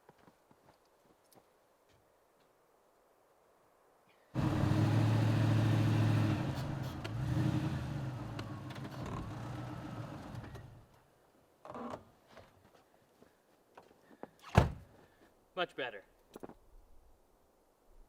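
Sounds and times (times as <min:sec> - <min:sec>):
truck engine running: 0:04.4 - 0:10.4.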